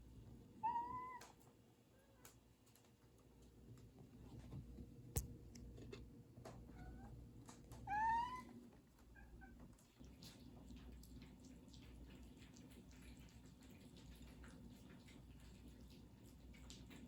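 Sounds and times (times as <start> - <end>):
cat meowing: 7.8 - 8.6.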